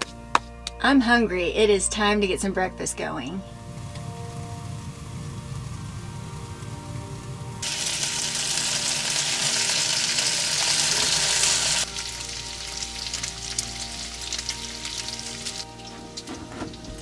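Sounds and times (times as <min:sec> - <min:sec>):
food sizzling in a frying pan: 0:03.7 - 0:17.0.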